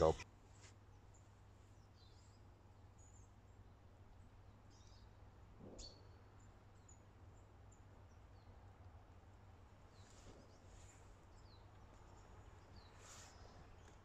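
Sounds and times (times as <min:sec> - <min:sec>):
faint high bird chirps: 0:04.5 - 0:08.6.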